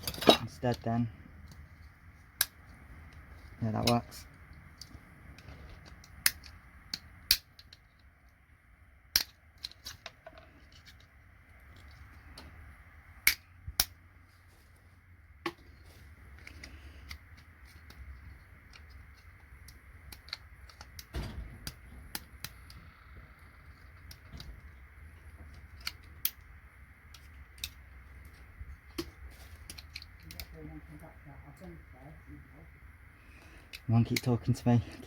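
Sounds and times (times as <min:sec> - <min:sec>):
hand tools clicking on connector: 0:00.0 - 0:08.1, 0:13.2 - 0:14.0, 0:16.3 - 0:30.6, 0:33.6 - 0:35.0.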